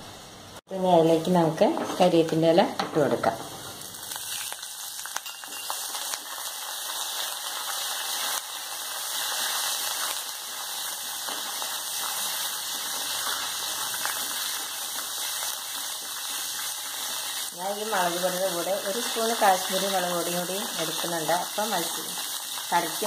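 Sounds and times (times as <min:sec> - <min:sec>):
leaves and seeds sizzling in oil: 0:00.0 - 0:23.0.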